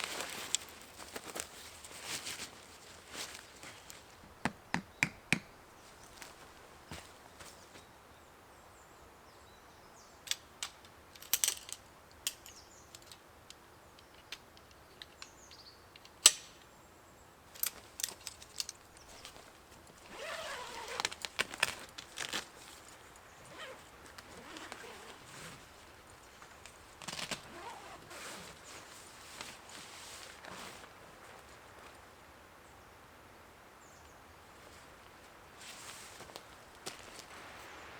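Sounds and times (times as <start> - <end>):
rustling: 0.0 - 4.2, 17.5 - 32.1, 34.6 - 37.9.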